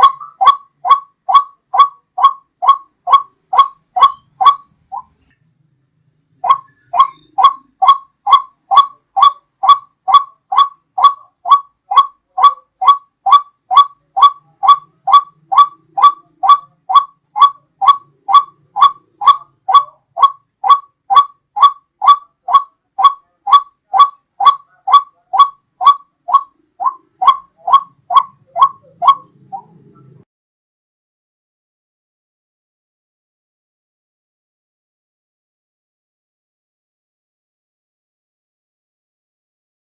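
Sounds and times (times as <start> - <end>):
waterhen call notes: 0.0 - 5.4, 6.4 - 30.2.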